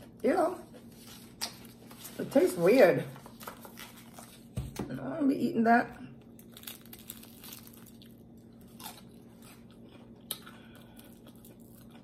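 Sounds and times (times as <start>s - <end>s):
breading crackles: 6.2s - 10.4s
crunching and chewing: 6.2s - 12.0s.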